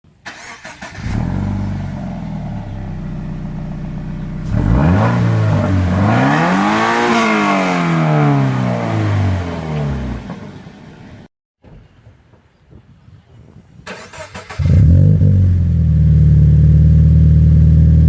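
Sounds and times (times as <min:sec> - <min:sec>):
car engine idling and revving: 0:00.4 - 0:11.2, 0:14.6 - 0:18.0.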